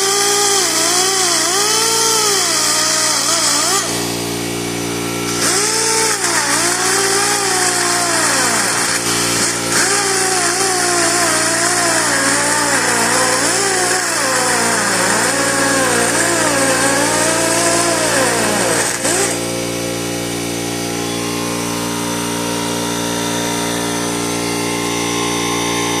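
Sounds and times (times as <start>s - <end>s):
die grinder whining: 0.0s - 26.0s.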